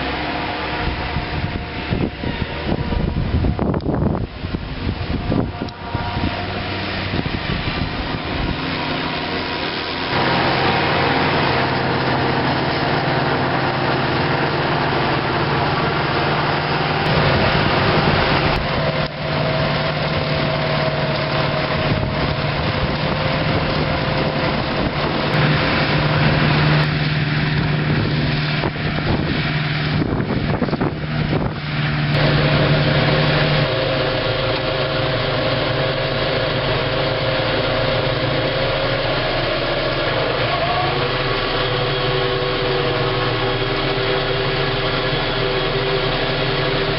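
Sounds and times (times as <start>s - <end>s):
harvester and tractor engines: 0.0s - 46.9s.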